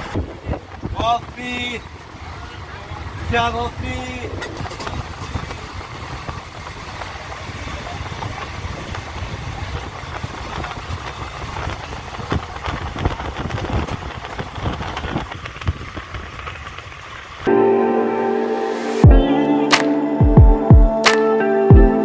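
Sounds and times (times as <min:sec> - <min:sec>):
train wheels rumbling on rails: 0:00.0 - 0:17.5.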